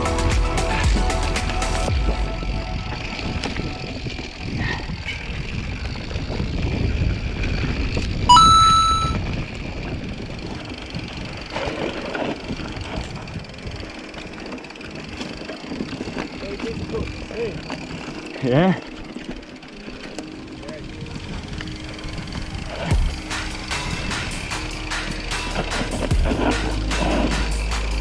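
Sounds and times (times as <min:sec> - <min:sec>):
mountain bike riding rumble: 0:03.1 - 0:08.3, 0:09.2 - 0:28.0
short high ringing tone: 0:08.3 - 0:09.4.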